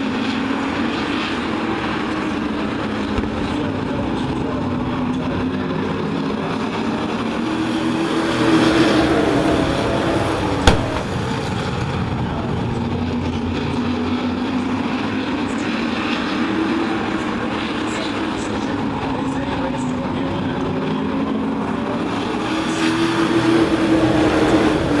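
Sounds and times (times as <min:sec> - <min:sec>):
race truck engines passing: 0:00.0 - 0:25.0
sharp crack: 0:10.6 - 0:11.5.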